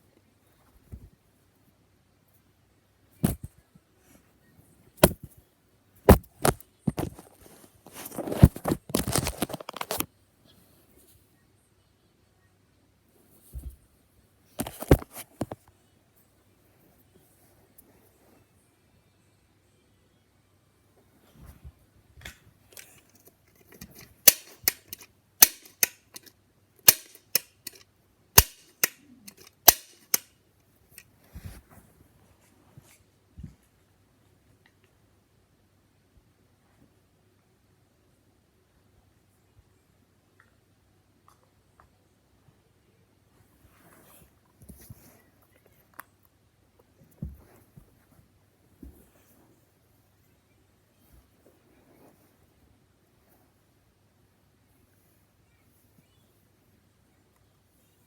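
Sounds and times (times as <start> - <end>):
sharp clicks and snaps: 22.2 - 30.3.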